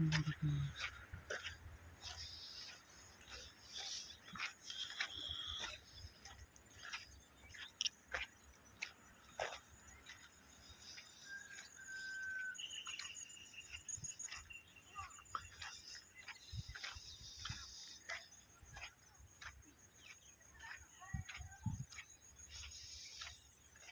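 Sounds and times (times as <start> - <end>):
birds chirping: 0.0 - 23.9
whistled bird notes: 10.9 - 18.1.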